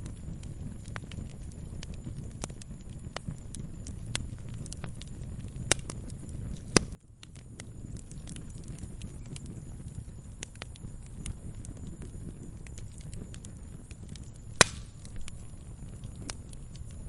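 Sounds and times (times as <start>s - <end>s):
fire pops: 0.0s - 17.0s
low steady rumble: 0.0s - 17.0s
wood fire crackling: 0.0s - 17.0s
loud sharp wood snaps: 14.6s - 15.2s.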